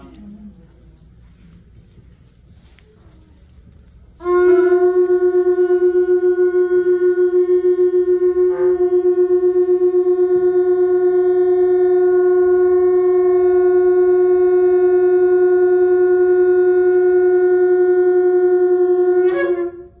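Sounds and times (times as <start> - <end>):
ram's horn blown: 4.2 - 20.0.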